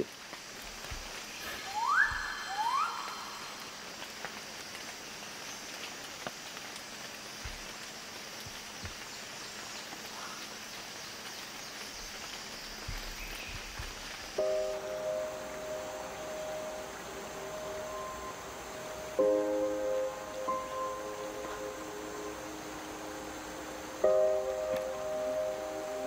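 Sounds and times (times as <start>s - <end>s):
rainforest background hiss: 0.0s - 26.0s
bird rising calls: 1.3s - 3.9s.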